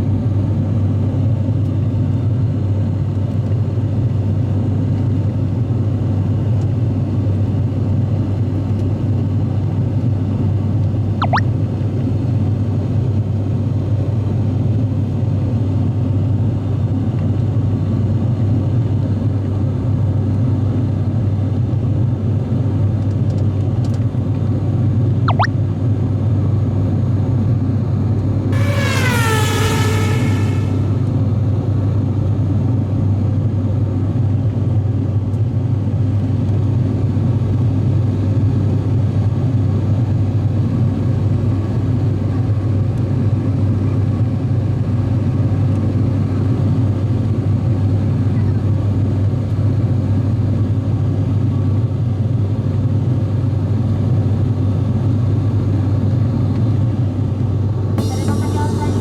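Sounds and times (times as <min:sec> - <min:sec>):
sliding pitched tone: 0:11.2 - 0:11.5, 0:28.6 - 0:31.1, 0:58.0 - 0:59.0
airliner cabin drone: 0:28.5 - 0:35.1, 0:40.6 - 0:59.0.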